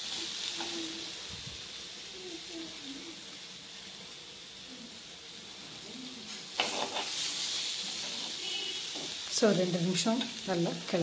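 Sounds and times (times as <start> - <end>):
pieces frying in oil: 0.0 - 11.0.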